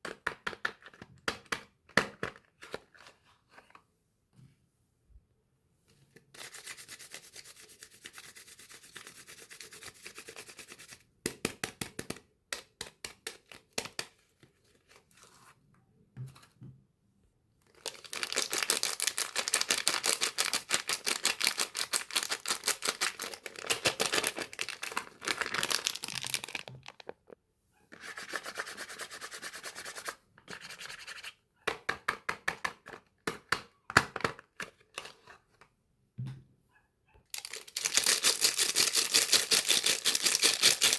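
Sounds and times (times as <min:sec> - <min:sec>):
packaging scratching and rustling: 0:17.8 - 0:27.4, 0:37.4 - 0:40.9.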